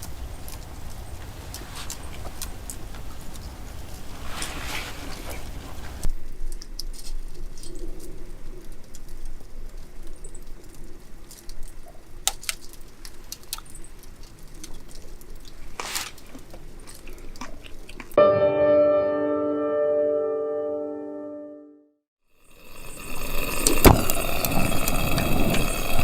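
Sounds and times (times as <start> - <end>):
sharp snaps and crackles: 0.0 - 18.2.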